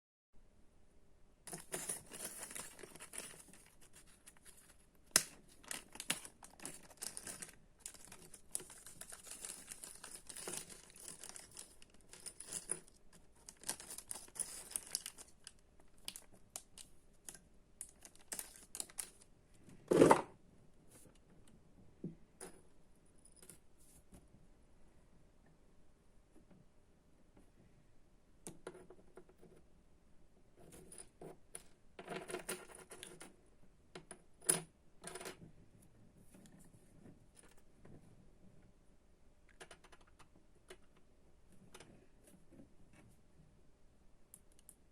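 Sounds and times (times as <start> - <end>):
plastic packaging crinkling: 5.6 - 12.7, 13.4 - 16.8.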